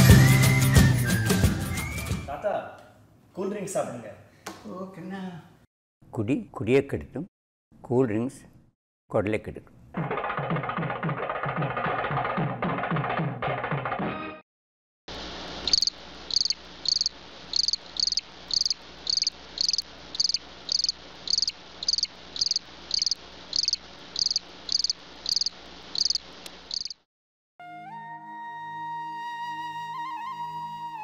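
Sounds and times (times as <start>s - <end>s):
cricket chirping: 15.6s - 27.0s.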